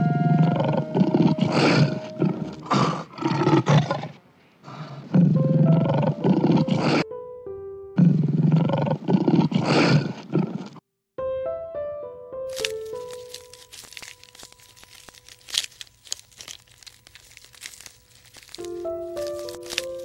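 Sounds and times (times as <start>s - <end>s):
background music: 0.0s - 2.7s, 5.2s - 9.0s, 11.2s - 15.7s, 18.4s - 20.0s
tiger roaring and growling: 0.1s - 7.0s, 8.0s - 10.8s.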